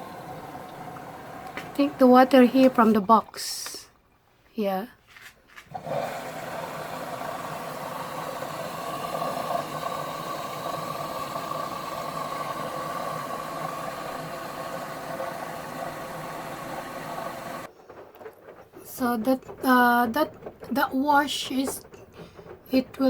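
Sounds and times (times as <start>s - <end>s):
machine humming: 0.0s - 3.8s, 5.7s - 23.0s
water rushing into machine: 0.0s - 3.9s, 5.7s - 17.7s.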